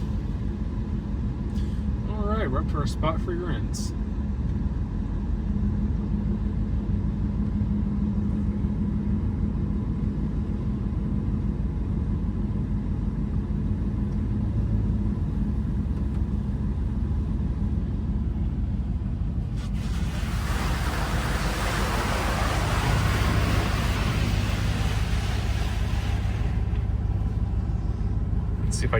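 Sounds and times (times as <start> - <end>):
truck idling rumble: 0.0 - 28.9
car wash hissing rush: 19.3 - 28.9.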